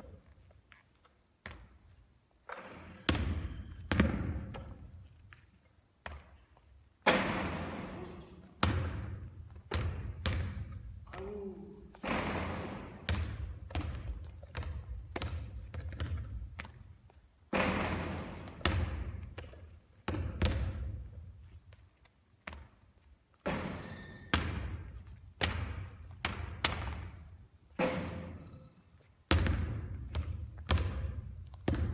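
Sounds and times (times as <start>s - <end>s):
basketballs bouncing on a hard court: 1.4s - 5.1s, 6.0s - 6.4s, 7.0s - 21.3s, 23.4s - 28.6s, 29.3s - 31.9s.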